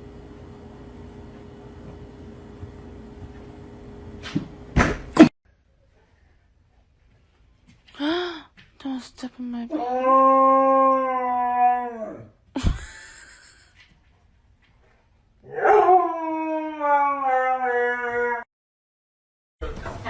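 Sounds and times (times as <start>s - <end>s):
thump: 4.2s - 5.3s
dog howling: 9.7s - 12.4s, 15.4s - 18.5s.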